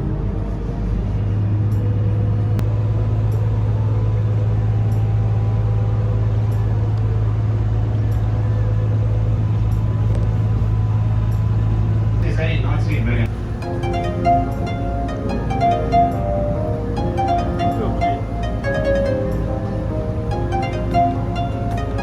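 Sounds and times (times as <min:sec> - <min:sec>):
boat engine droning: 0:13.3 - 0:22.0.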